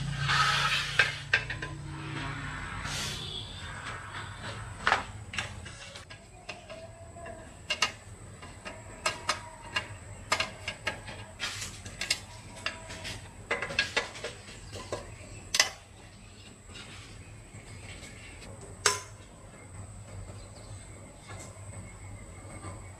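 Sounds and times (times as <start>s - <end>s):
metal tools clicking and knocking: 5.3s - 16.6s.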